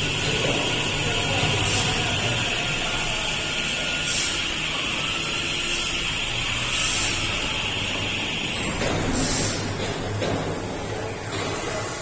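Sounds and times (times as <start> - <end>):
cnc router whine: 0.0 - 9.4.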